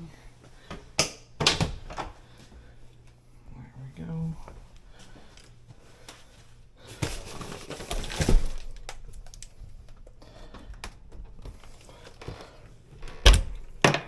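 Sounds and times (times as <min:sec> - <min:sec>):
rustling and handling noises: 0:03.9 - 0:13.2.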